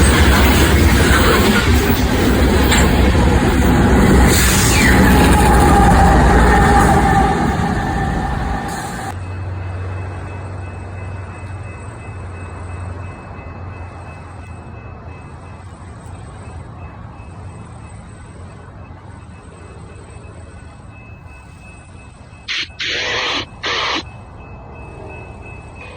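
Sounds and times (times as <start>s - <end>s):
train rumbling: 0.0s - 19.2s.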